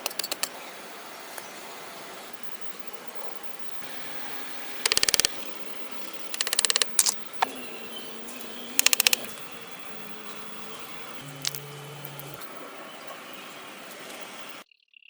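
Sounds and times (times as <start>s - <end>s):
rapid mechanical clicking: 0.0s - 0.5s, 4.8s - 7.2s, 8.8s - 9.4s.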